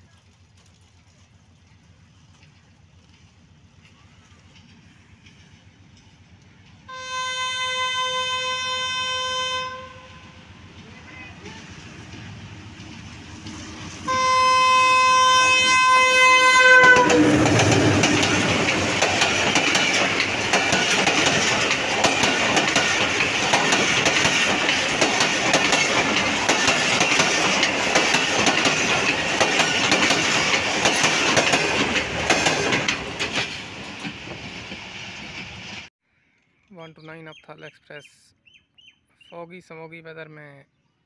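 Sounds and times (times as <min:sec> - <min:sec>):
locomotive horn blast: 0:06.9 - 0:11.5, 0:14.0 - 0:17.7
train wheels clattering over rails: 0:16.8 - 0:35.8.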